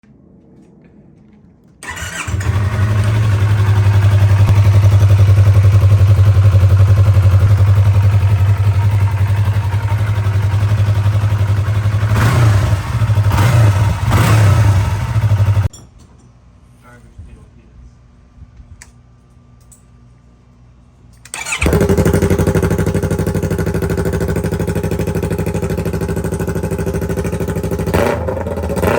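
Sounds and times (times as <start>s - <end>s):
motorcycle engine revving: 1.8s - 15.7s, 21.3s - 28.9s
motorcycle engine idling: 1.9s - 15.7s, 21.4s - 28.9s.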